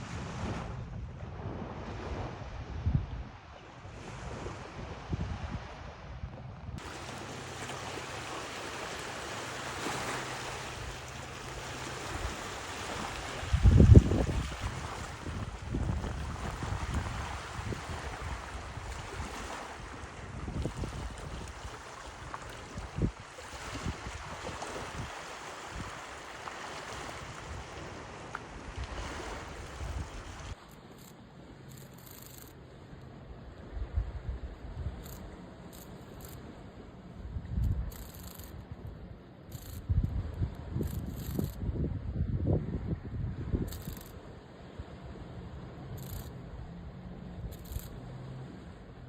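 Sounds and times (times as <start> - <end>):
wind gusting on microphone: 0.0 - 7.1, 12.0 - 26.1, 26.9 - 30.6, 39.7 - 44.2
coastal water noise: 0.0 - 49.0.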